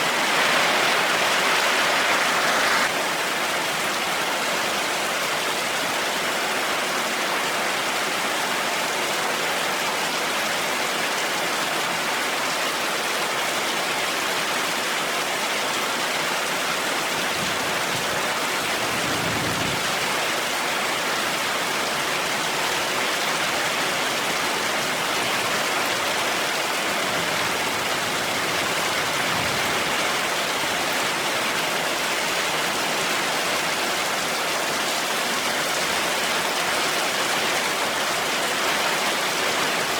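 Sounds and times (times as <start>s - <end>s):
heavy rain hissing: 0.0s - 3.2s
low rumbles of thunder: 18.8s - 20.1s.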